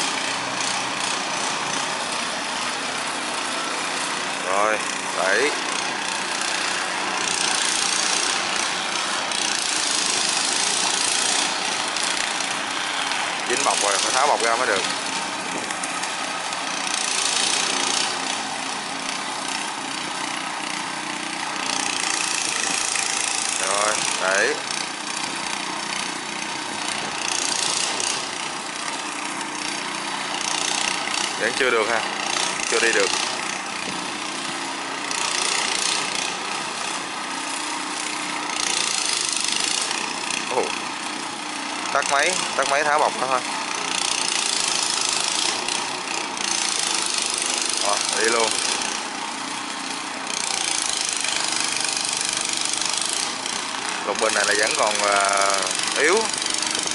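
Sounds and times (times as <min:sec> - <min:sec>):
boat engine running: 0:02.7 - 0:35.4, 0:40.3 - 0:40.8, 0:41.4 - 0:44.3, 0:54.0 - 0:56.9.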